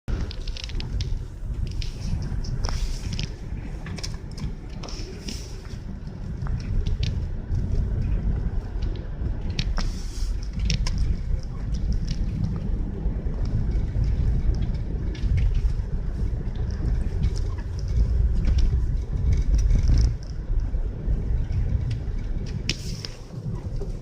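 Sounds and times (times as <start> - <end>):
road and wind rumble: 0.0 - 24.0.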